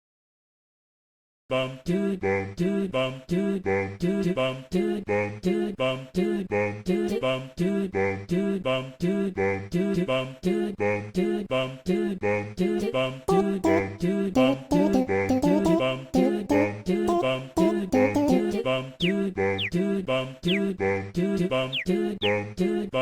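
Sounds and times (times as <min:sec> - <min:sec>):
person singing clipped syllables: 0:13.3 - 0:19.8, 0:20.5 - 0:20.7, 0:21.7 - 0:22.4.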